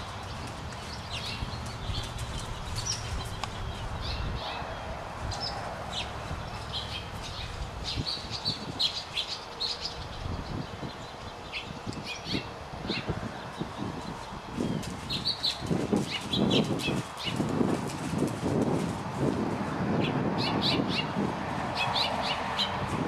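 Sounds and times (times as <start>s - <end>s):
horse hooves on dirt: 0.0s - 4.0s, 13.6s - 19.8s
small birds chirping: 0.0s - 17.6s.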